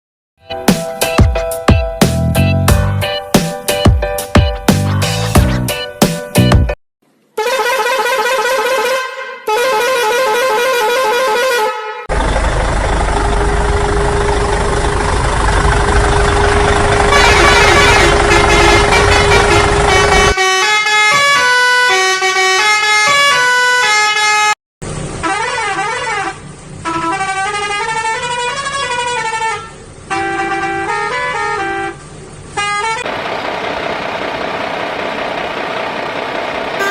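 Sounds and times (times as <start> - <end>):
vehicle horns: 7.4 - 12.1, 16.4 - 24.6, 25.2 - 33.1
engine noise: 12.1 - 20.4, 24.8 - 36.9.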